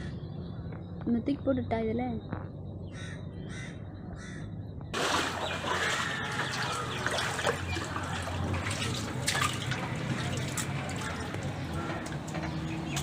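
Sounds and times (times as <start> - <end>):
crow cawing: 2.9 - 4.5, 5.1 - 12.9
rushing floodwater: 5.0 - 13.0.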